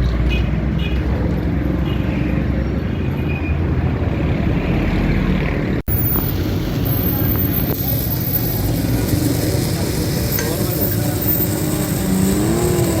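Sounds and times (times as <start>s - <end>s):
metalworking machinery noise: 5.9s - 13.0s.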